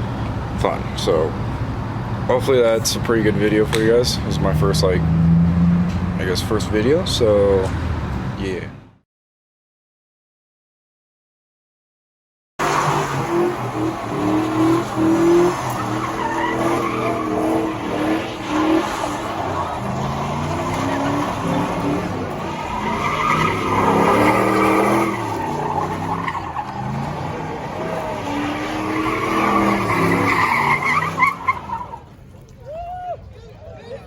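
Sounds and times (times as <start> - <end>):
vehicle engine revving hard: 4.4 - 6.3, 12.6 - 31.9
tyres squealing: 12.6 - 32.2.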